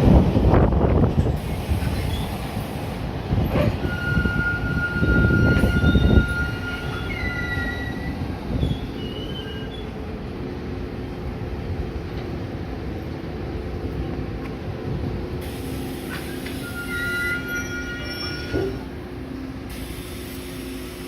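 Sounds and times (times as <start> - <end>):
train rumble: 0.0 - 21.0
train wheels squealing: 1.8 - 2.4, 3.5 - 10.0, 16.1 - 18.9.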